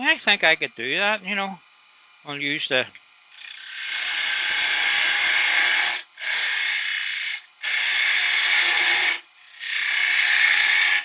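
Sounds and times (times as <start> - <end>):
woodworking tool cutting wood: 3.3 - 11.0.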